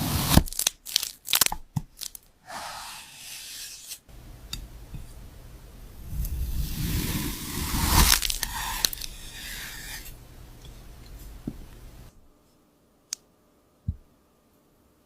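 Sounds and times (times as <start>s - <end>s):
crackling crunches and scraping: 0.4s - 2.3s, 7.6s - 9.3s.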